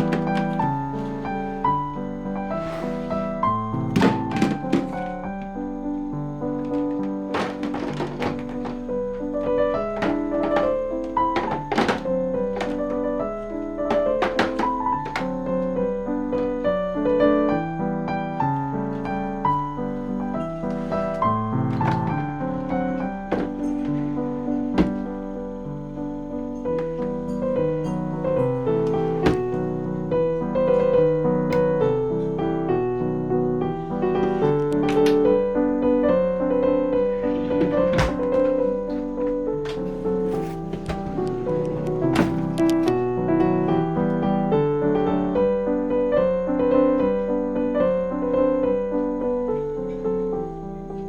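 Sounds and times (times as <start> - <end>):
gentle piano melody: 0.0 - 51.0.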